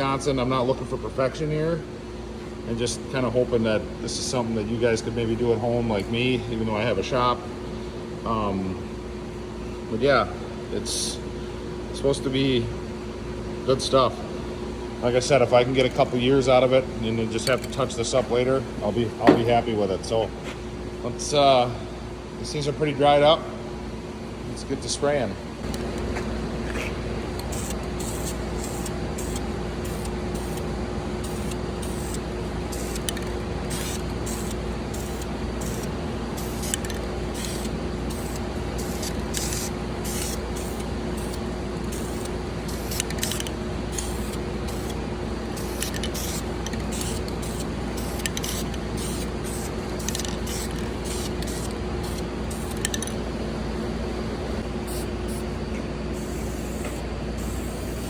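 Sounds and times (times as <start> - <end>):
steady low hum: 0.0 - 58.0
spray paint hissing: 26.8 - 53.0, 54.8 - 55.4, 56.2 - 58.0.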